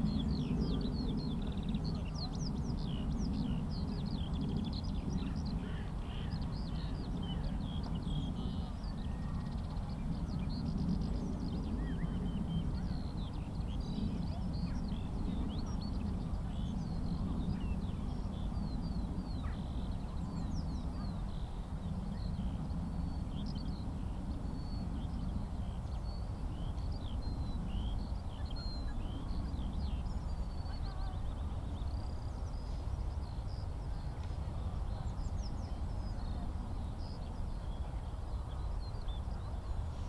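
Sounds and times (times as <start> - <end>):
skylark singing: 0.0 - 32.0.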